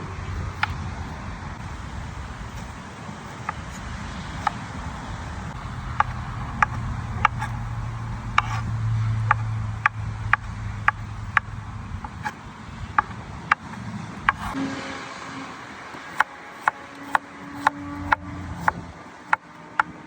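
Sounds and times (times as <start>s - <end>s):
low hum: 0.0s - 19.0s
sharp rhythmic knocks: 5.5s - 14.6s, 15.9s - 20.0s.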